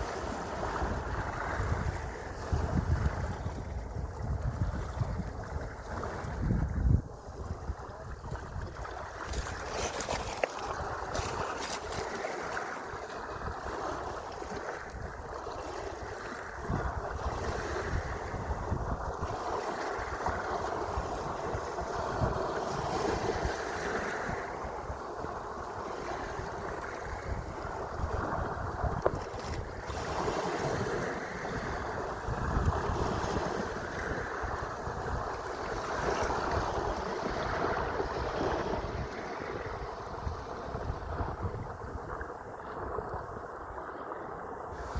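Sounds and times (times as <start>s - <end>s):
sea waves washing: 0.0s - 44.9s
wind buffeting microphone: 0.0s - 44.9s.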